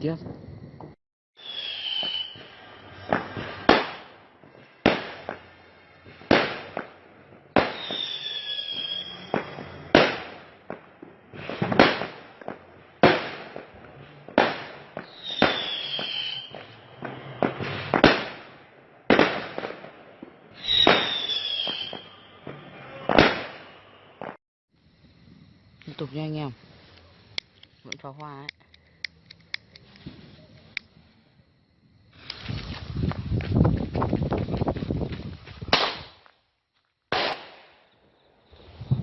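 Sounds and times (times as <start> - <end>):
fireworks bangs: 0.0 - 24.4, 32.1 - 36.4, 37.1 - 39.0
falling firework whistle: 1.4 - 19.9, 20.5 - 24.4.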